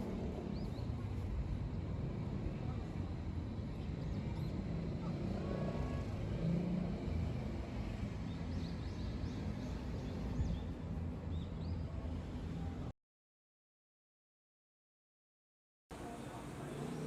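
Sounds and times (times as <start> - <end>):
low traffic rumble: 0.0 - 12.9.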